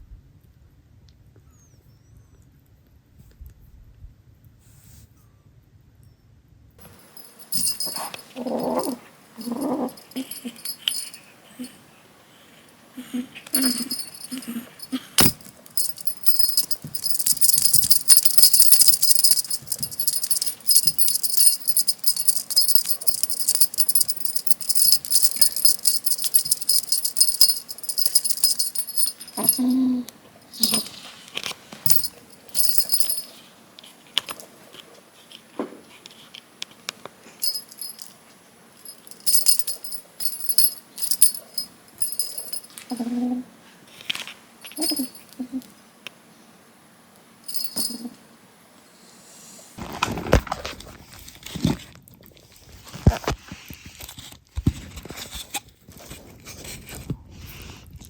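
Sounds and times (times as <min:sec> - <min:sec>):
small bell jingling: 0:06.8 - 0:12.0, 0:12.7 - 0:31.1, 0:31.8 - 0:33.4, 0:37.4 - 0:38.2, 0:38.8 - 0:43.1, 0:44.6 - 0:45.6, 0:47.4 - 0:48.2.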